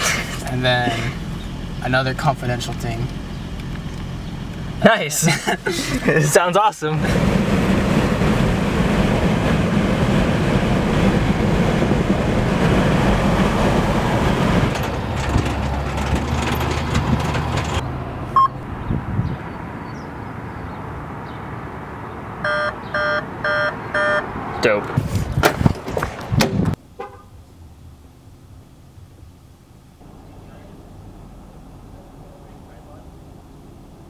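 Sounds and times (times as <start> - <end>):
vehicle rumble and road noise: 0.0 - 34.0
short electronic beeps: 22.4 - 24.3.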